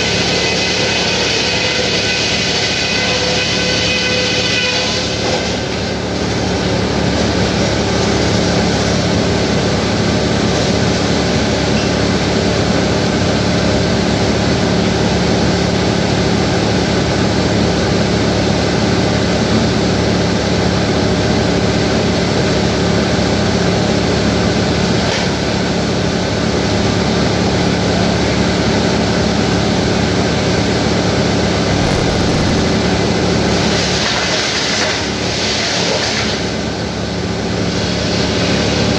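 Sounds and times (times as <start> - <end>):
sawmill machinery droning: 31.7 - 33.4.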